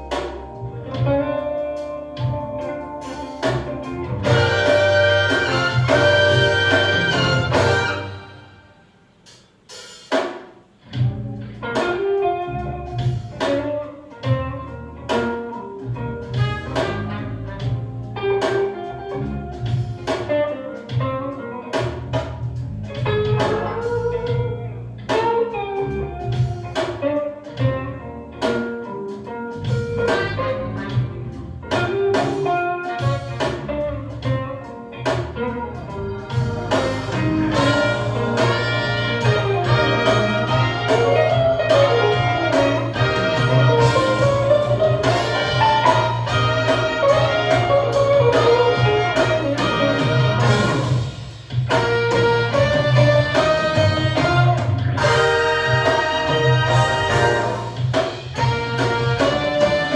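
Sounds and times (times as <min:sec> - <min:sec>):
deep bass line: 0:00.0 - 0:08.3, 0:22.1 - 0:25.1, 0:35.6 - 0:59.9
plucked guitar notes: 0:30.0 - 0:51.0, 0:51.7 - 0:59.9.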